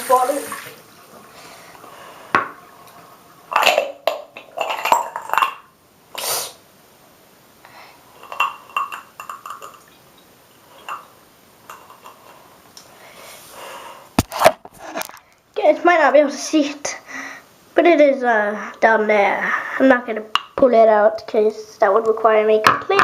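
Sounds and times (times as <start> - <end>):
container clinking in a sink: 3.5 - 5.7, 8.2 - 9.9
short hissy burst: 6.1 - 6.6.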